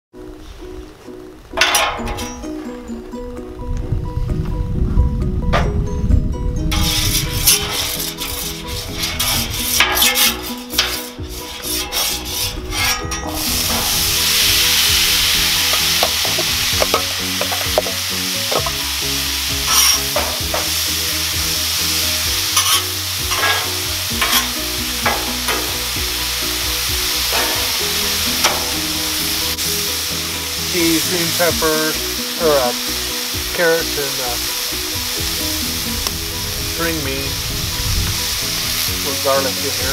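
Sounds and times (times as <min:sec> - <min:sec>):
metal spatula scraping griddle: 0:06.7 - 0:36.0
vegetables sizzling on griddle: 0:06.8 - 0:39.9.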